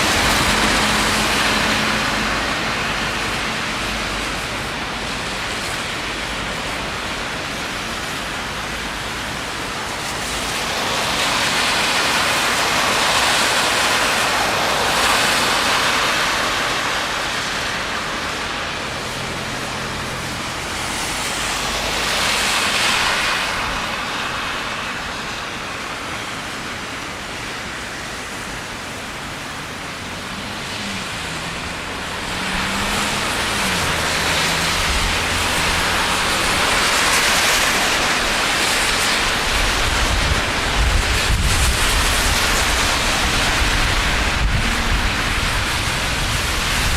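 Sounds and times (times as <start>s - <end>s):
rain and wet road hiss: 0.0s - 46.9s
vehicles swishing past: 27.4s - 46.9s.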